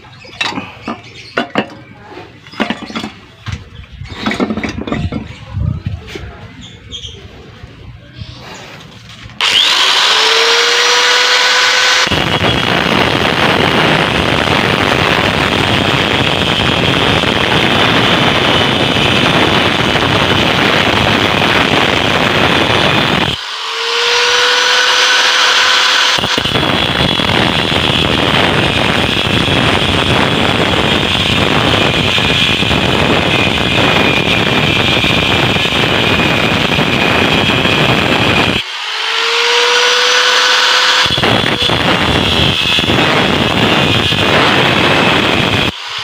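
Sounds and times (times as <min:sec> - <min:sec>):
grinder motor whining unloaded: 0:09.1 - 0:46.0
angle grinder cutting steel: 0:09.4 - 0:46.0.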